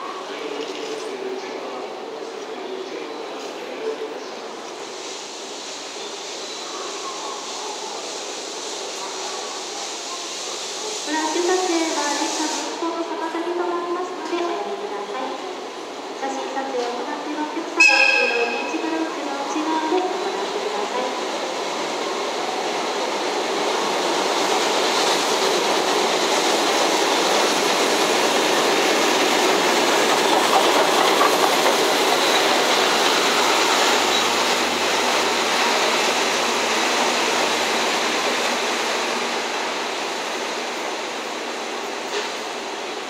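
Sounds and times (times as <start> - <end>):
train wheels rumbling on rails: 14.0 - 43.0.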